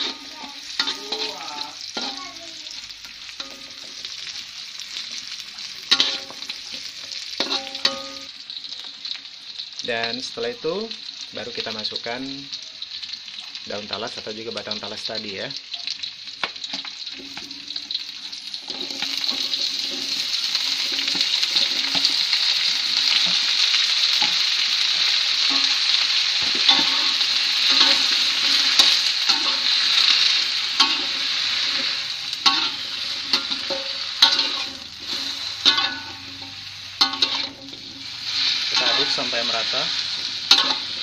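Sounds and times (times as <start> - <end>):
metal spatula scraping a wok: 0.0 - 2.3, 5.9 - 8.3, 16.8 - 41.0
food sizzling in hot oil: 0.0 - 41.0.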